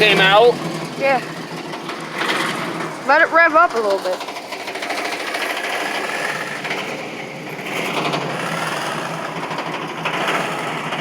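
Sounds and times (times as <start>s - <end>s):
exhaust pulsing: 0.0s - 11.0s
van engine revving: 0.0s - 11.0s.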